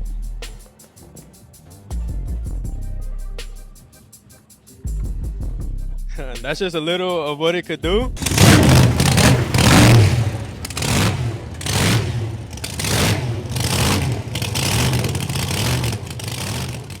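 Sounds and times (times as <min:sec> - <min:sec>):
car engine revving: 0:08.0 - 0:17.0.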